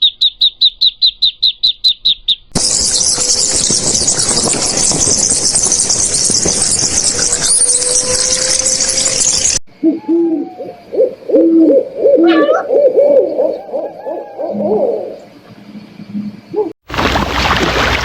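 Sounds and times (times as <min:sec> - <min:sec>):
high-pitched chorus of calls: 0:02.6 - 0:11.0
animal hooting calls: 0:07.2 - 0:15.3.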